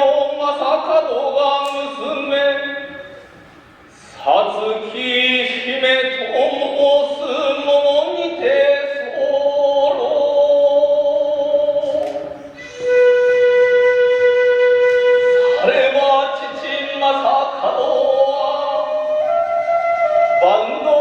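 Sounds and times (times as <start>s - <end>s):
bamboo flute slow melody: 12.5s - 15.9s, 18.6s - 21.0s.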